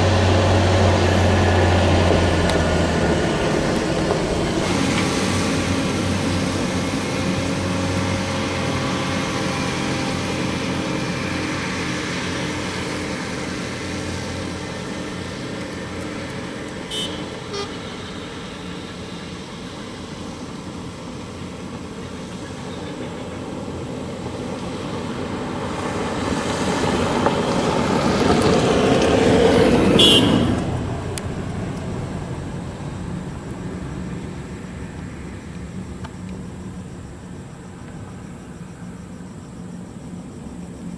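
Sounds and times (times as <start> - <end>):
heavy truck engines: 0.0 - 40.9
high truck horn toot: 16.9 - 18.1, 29.9 - 30.7.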